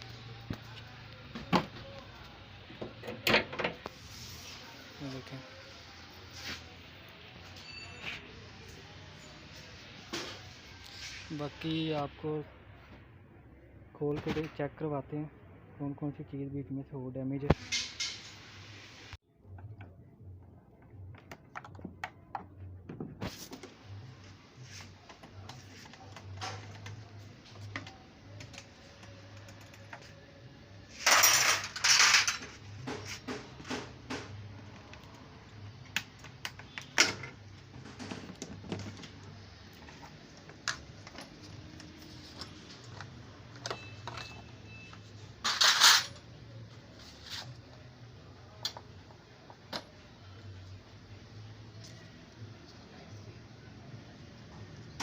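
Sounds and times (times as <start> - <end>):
metal tools clinking and knocking: 31.0 - 32.6, 45.4 - 46.3.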